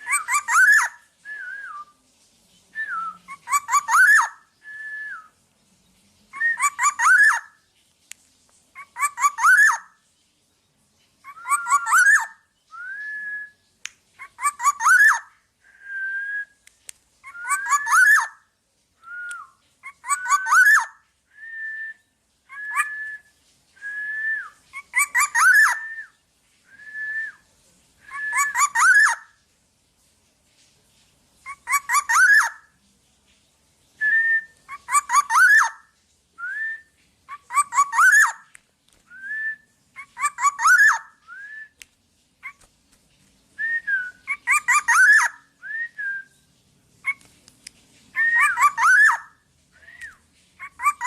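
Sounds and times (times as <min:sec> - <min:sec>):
bird singing fluty whistles: 0:00.0 - 0:02.0, 0:02.7 - 0:05.4, 0:06.4 - 0:07.5, 0:11.3 - 0:13.6, 0:14.4 - 0:18.4, 0:19.0 - 0:27.4, 0:28.0 - 0:29.2, 0:34.0 - 0:35.8, 0:36.4 - 0:38.4, 0:39.1 - 0:41.8, 0:43.6 - 0:46.5, 0:48.2 - 0:51.0.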